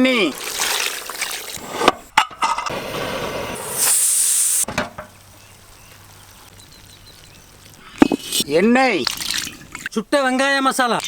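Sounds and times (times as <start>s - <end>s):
loud hissing sizzle: 2.7s - 8.5s
curry sizzling in a pot: 3.6s - 8.6s.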